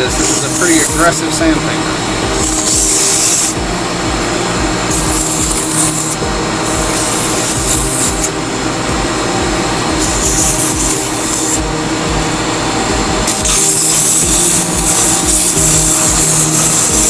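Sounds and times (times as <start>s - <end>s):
wood lathe humming: 0.0s - 17.0s
sandpaper hissing on wood: 13.4s - 17.0s.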